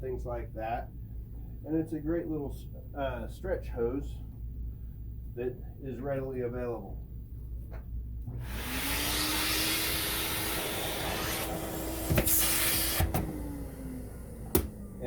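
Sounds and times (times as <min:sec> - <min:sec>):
vacuum motor whine and suction: 0:08.3 - 0:15.0.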